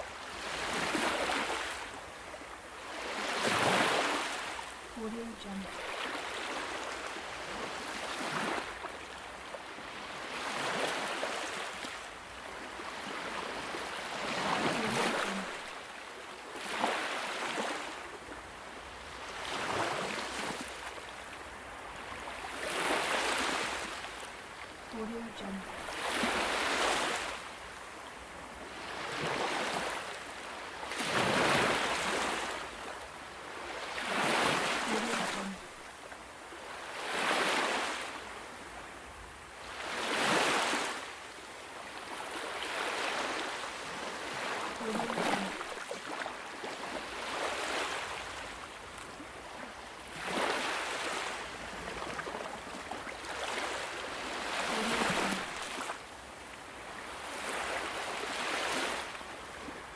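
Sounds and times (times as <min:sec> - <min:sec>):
ocean waves washing in: 0:33.8 - 0:35.8, 0:53.2 - 0:56.0.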